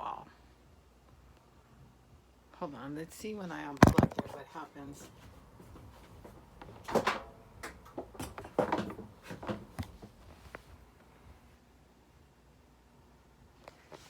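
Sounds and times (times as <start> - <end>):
microwave knocking and clattering: 5.8 - 10.2.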